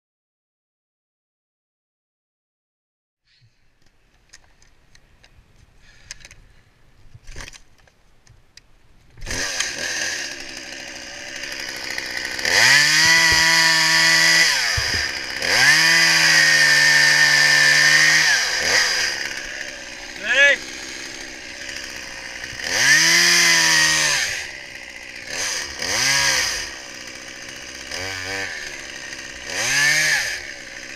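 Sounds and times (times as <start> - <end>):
chainsaw idling and revving: 9.2 - 30.9.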